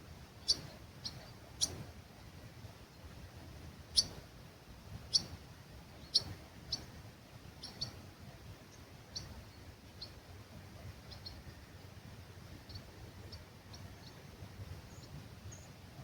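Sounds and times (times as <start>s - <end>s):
faint low breeze hum: 0.0s - 16.0s
bird chirping: 0.4s - 1.8s, 4.0s - 4.2s, 5.1s - 5.4s, 6.0s - 6.9s, 7.6s - 8.0s, 9.1s - 10.2s.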